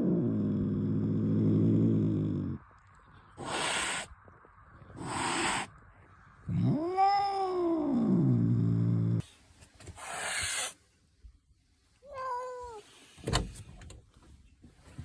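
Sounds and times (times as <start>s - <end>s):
cat growling: 0.0s - 4.2s, 4.8s - 5.7s, 6.4s - 9.3s
cat yowling: 3.4s - 4.1s, 5.0s - 5.7s, 6.5s - 8.1s
cat hissing: 3.4s - 4.2s, 4.8s - 5.7s, 9.9s - 10.8s.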